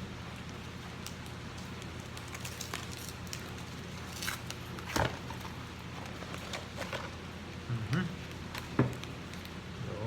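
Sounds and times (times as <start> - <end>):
plastic packaging crinkling: 1.0 - 7.2.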